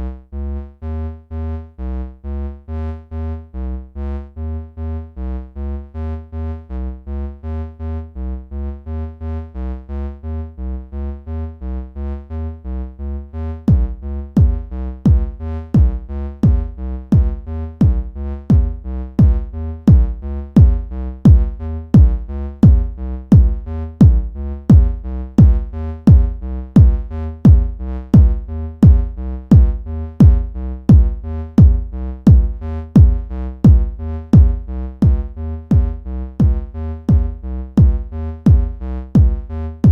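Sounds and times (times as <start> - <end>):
pulsing bass: 0.0 - 39.9
drum machine kick: 13.7 - 39.9.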